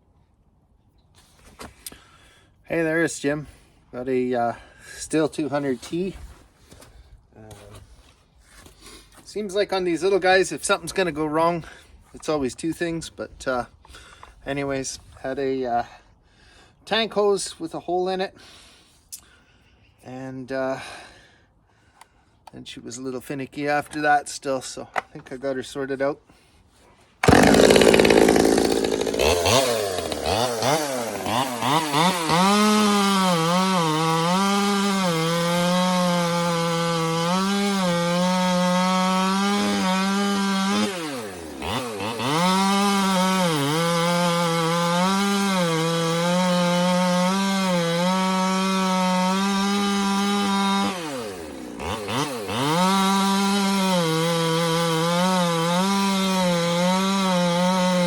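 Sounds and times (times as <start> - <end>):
chainsaw engine at high revs: 27.2 - 58.0.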